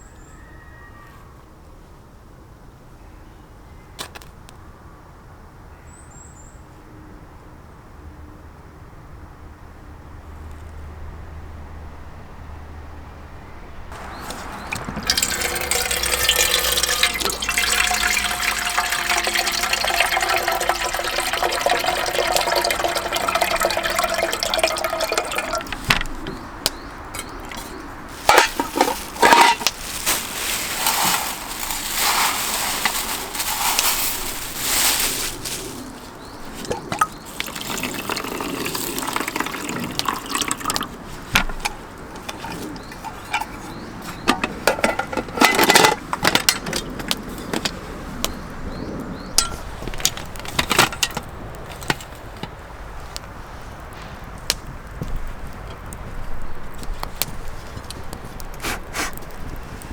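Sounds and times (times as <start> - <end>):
objects knocking and clattering: 13.9 - 35.6, 36.4 - 47.8, 49.4 - 53.2
water pouring into container: 14.0 - 35.4, 36.5 - 43.5.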